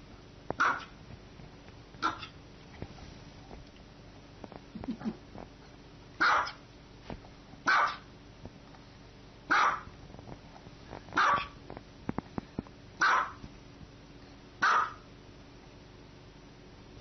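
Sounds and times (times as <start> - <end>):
dog barking: 0.6 - 1.0, 2.0 - 2.4, 6.2 - 6.6, 7.7 - 8.1, 9.5 - 9.9, 11.2 - 11.6, 13.0 - 13.4, 14.6 - 15.1.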